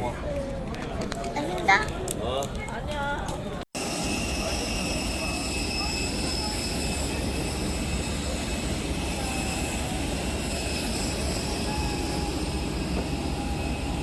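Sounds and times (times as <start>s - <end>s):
faint high whines: 3.8s - 14.0s
jet engines running: 3.8s - 14.0s.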